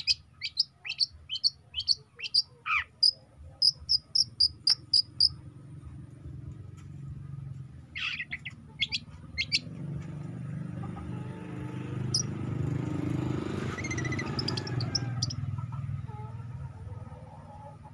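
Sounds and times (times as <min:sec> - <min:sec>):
shrike chirping: 0:00.0 - 0:05.4, 0:12.0 - 0:12.3, 0:13.6 - 0:15.4.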